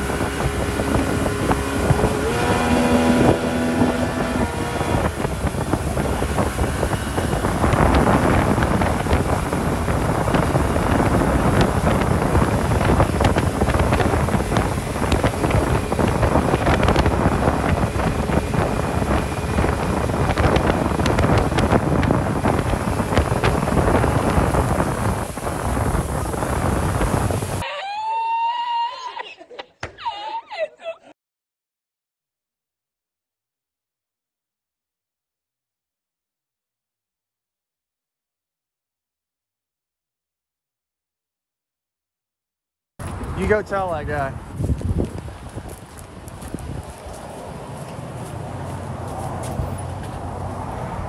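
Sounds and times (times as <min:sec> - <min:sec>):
motorboat engine drone: 0:00.0 - 0:27.6, 0:43.0 - 0:51.0
wind noise on microphone: 0:00.0 - 0:27.6, 0:43.0 - 0:51.0.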